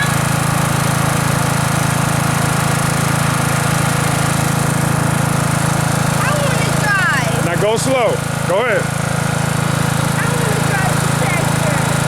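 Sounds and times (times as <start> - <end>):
riding mower engine humming: 0.0 - 12.0.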